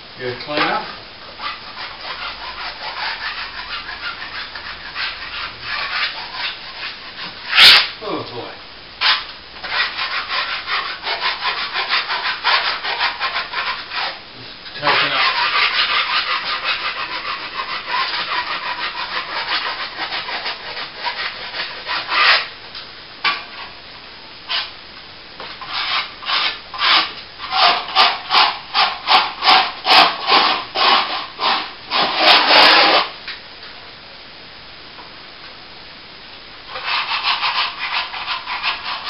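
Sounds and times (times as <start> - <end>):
hand tool scraping plaster: 1.4 - 7.9, 9.0 - 22.5, 25.6 - 33.1, 36.7 - 39.0.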